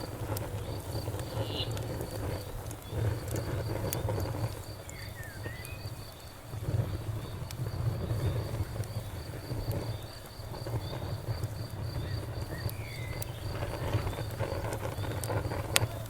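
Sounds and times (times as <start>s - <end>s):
campfire rumbling: 0.0s - 16.0s
cricket chirping: 0.0s - 16.0s
wood crackling and popping: 0.0s - 16.0s.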